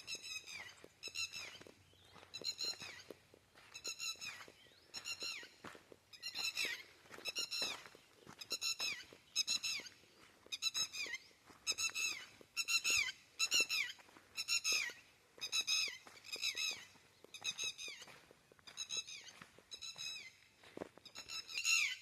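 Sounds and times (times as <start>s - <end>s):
animal squeaky falling calls: 3.8s - 7.8s, 10.5s - 18.1s, 18.8s - 20.4s, 21.1s - 22.0s.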